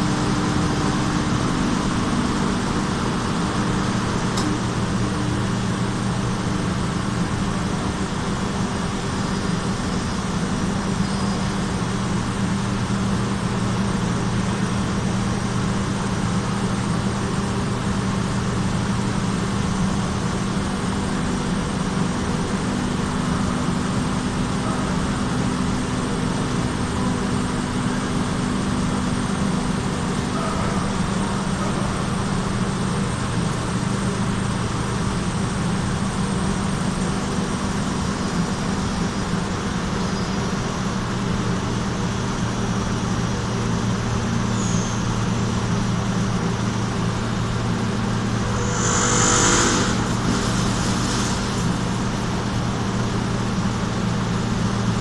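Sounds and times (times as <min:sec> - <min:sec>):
faint high whine: 0:46.3 - 0:54.6
machine humming: 0:47.4 - 0:53.9.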